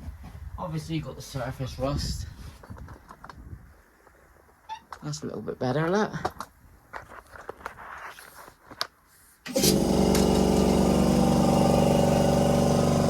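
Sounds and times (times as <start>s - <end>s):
electric motor humming: 9.5s - 13.0s.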